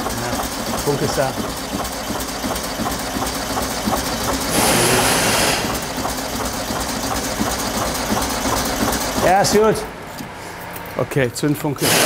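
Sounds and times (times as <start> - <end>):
car engine running unevenly: 0.0 - 10.4
loud hiss: 4.5 - 5.8, 11.8 - 12.0.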